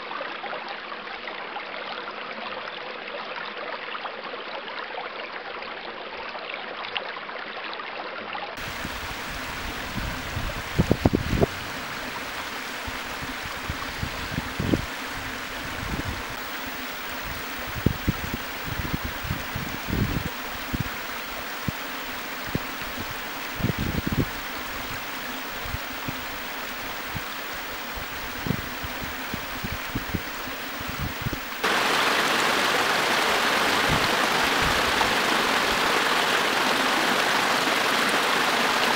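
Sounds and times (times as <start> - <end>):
running water: 8.6 - 38.9.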